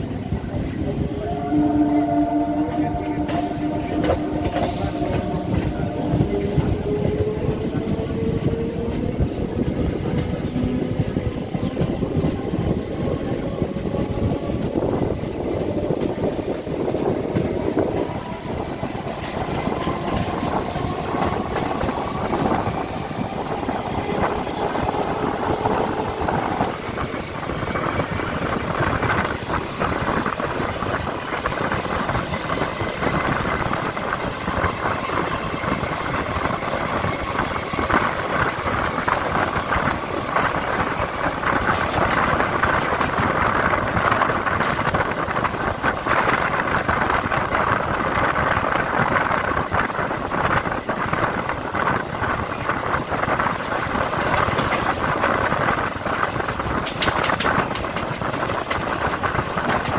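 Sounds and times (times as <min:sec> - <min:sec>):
train wheels clattering on rails: 0:02.7 - 0:59.9.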